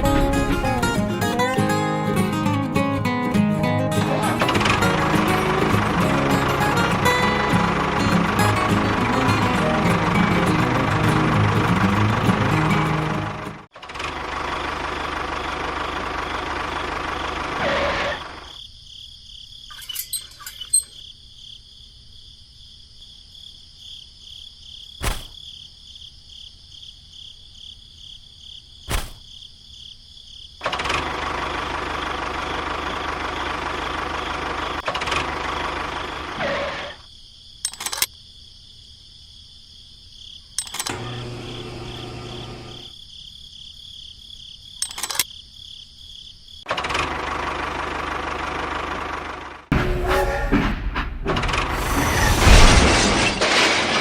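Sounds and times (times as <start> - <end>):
insect trill: 17.4 - 30.8, 34.8 - 46.7
sharp clicks: 37.6 - 38.1, 44.8 - 45.3
small motor running: 40.7 - 42.9.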